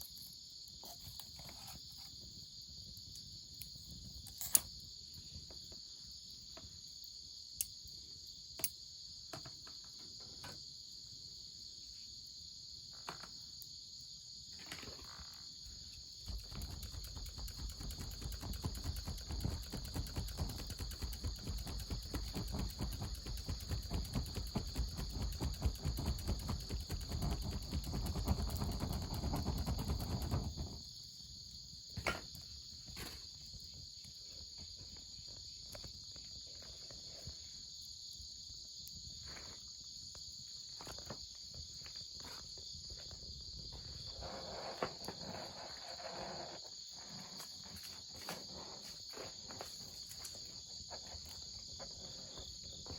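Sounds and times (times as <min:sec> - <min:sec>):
insects chirping: 0:00.0 - 0:52.9
wood fire crackling: 0:16.2 - 0:30.8.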